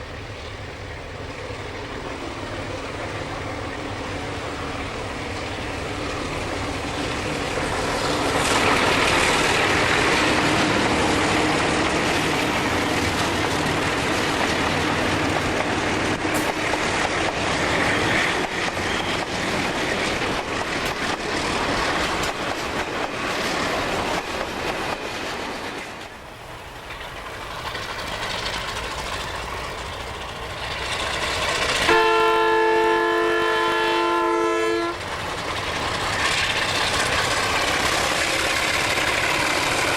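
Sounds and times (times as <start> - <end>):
diesel locomotive engine: 0.0 - 39.9
train wheel noise: 0.0 - 39.9
locomotive horn chord: 31.9 - 35.0.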